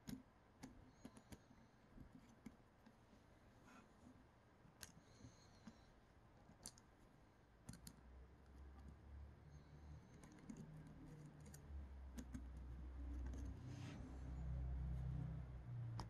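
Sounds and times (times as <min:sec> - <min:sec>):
light clicks of small parts: 0:06.4 - 0:07.0.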